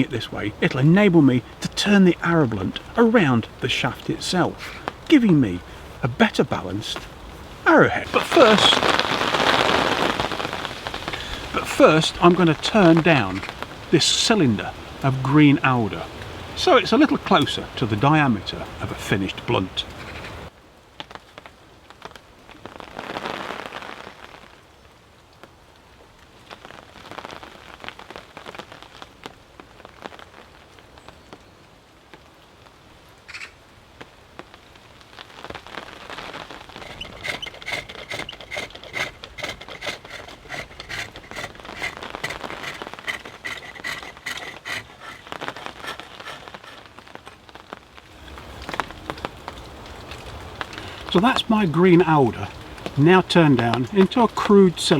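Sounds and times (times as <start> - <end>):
lathe tool cutting wood: 36.8 - 46.8.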